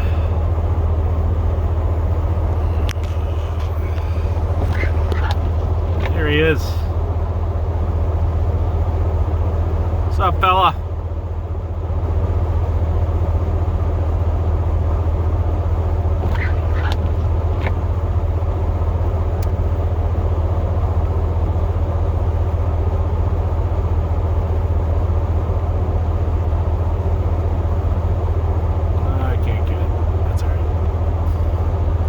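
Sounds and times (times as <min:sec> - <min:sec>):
truck engine and road drone: 0:00.0 - 0:32.0
high squeaks: 0:02.3 - 0:06.5, 0:16.2 - 0:17.8.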